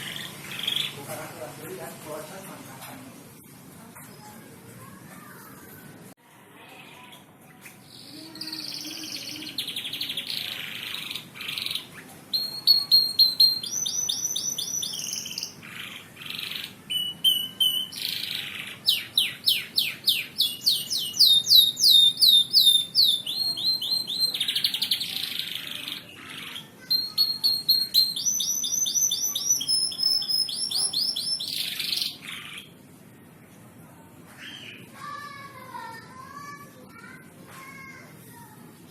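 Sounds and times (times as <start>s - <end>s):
canary singing trills: 0.0s - 1.1s, 6.7s - 32.8s.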